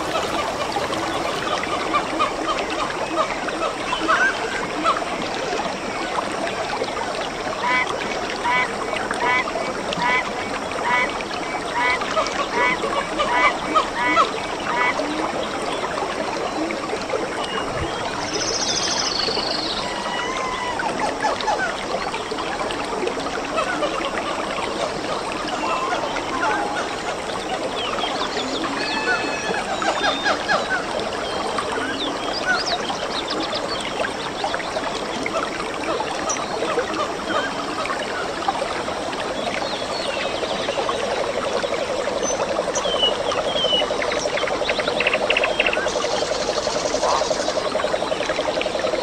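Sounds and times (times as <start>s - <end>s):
birds chirping: 0.0s - 2.0s
stream rushing: 0.0s - 12.4s
running water: 0.0s - 49.0s.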